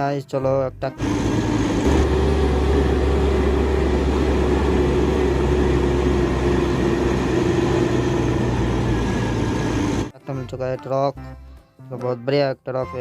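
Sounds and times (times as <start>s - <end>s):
motor humming: 1.0s - 10.1s.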